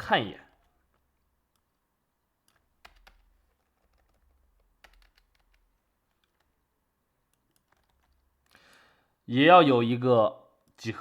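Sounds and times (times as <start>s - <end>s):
computer keys clicking: 2.4s - 6.6s, 7.2s - 8.9s.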